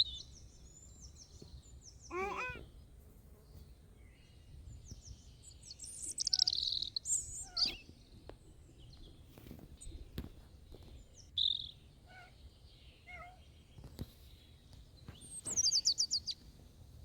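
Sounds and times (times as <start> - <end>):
small birds chirping and trilling: 0.0 - 16.6
short pitched animal call: 2.1 - 2.7.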